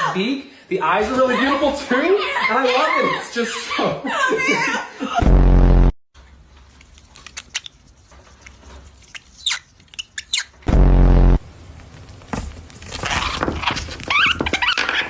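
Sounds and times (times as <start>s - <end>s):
loud low harsh buzz: 5.2s - 6.0s, 10.7s - 11.6s
parrot chirps and squeaks: 7.2s - 10.7s.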